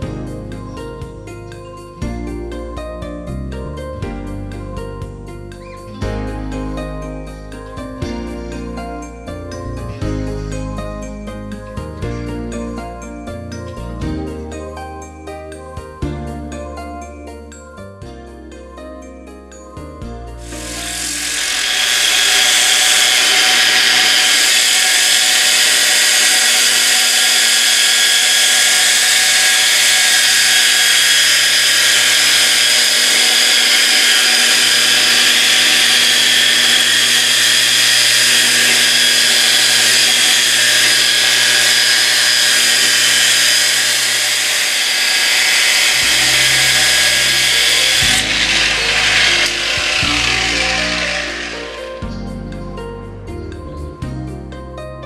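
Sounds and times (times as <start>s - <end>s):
angle grinder motor whine: 20.4s - 52.2s
pad grinding on stone: 20.5s - 51.9s.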